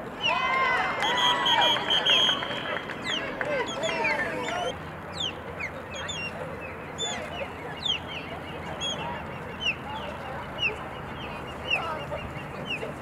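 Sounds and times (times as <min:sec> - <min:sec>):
faint voices: 0:00.0 - 0:13.0
bird chirping: 0:03.0 - 0:12.9.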